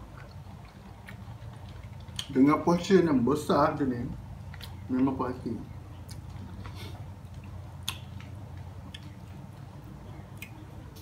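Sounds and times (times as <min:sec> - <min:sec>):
man chewing meat: 0:00.0 - 0:02.6, 0:04.2 - 0:05.1, 0:05.7 - 0:11.0
low steady hum: 0:00.0 - 0:11.0
wet mouth smacks and clicks: 0:07.4 - 0:09.1.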